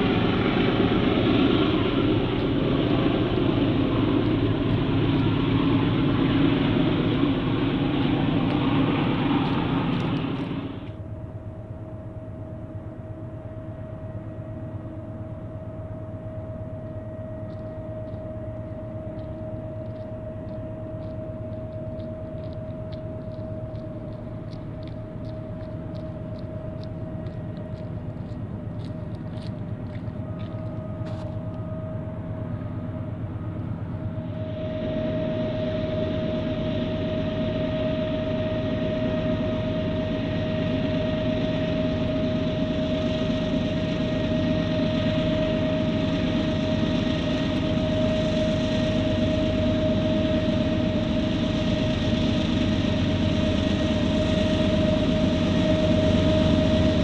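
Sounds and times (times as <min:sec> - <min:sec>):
diesel locomotive running: 0:00.0 - 0:57.0.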